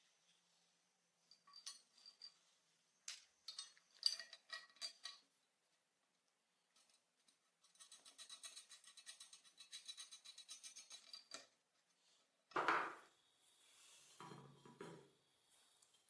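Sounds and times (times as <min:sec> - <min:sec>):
metal parts and tools clinking: 0:01.3 - 0:02.5, 0:03.1 - 0:05.3, 0:06.8 - 0:11.6.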